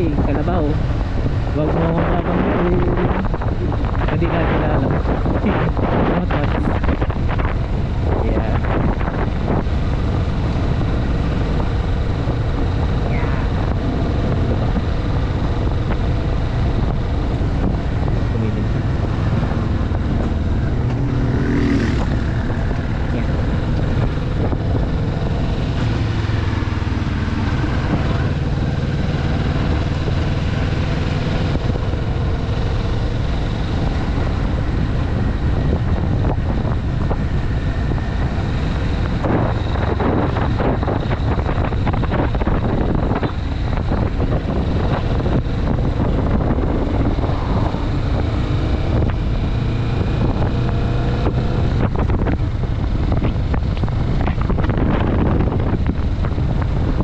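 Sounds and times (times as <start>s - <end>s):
motorcycle engine cruising: 0.0s - 57.0s
wind rushing over microphone: 0.0s - 57.0s
vehicle passing: 18.4s - 24.6s.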